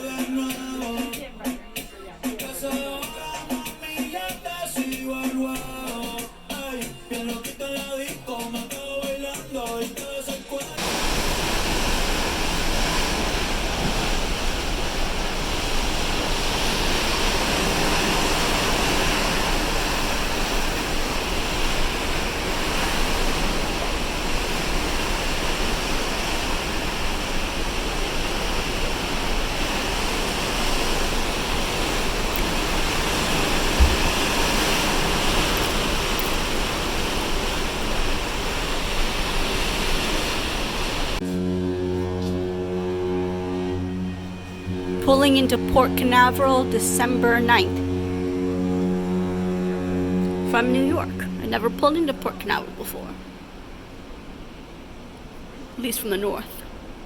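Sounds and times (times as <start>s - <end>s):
sea water rushing along hull: 0.0s - 57.0s
wind: 10.8s - 45.1s, 47.7s - 57.0s.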